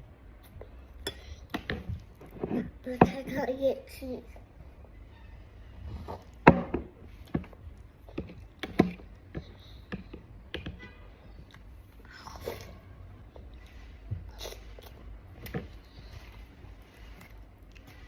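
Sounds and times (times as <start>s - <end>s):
child chewing food: 0.2s - 2.8s, 7.0s - 10.6s, 11.3s - 18.0s.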